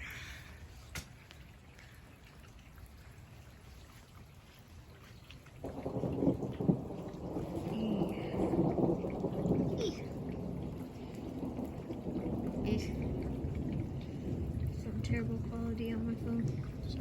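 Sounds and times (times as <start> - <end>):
rain: 0.0 - 17.0
thunder rumbling: 5.6 - 17.0
loud peal of thunder: 5.7 - 17.0.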